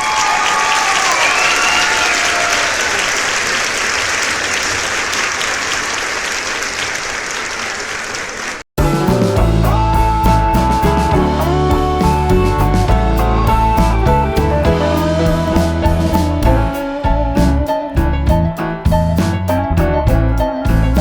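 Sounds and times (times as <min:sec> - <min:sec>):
audience applause: 0:00.0 - 0:08.7
bent guitar notes: 0:08.8 - 0:21.0
loud rock music with drums: 0:08.8 - 0:21.0.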